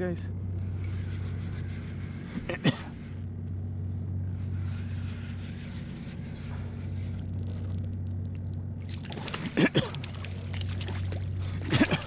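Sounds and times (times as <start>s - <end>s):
low engine hum: 0.0s - 12.0s
fish splashing at water surface: 8.8s - 12.0s.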